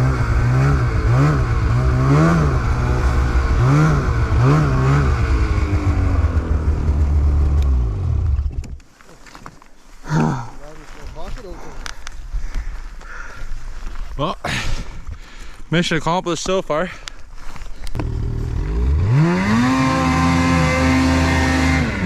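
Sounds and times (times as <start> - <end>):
snowmobile engine revving: 0.0 - 8.5, 18.0 - 22.0.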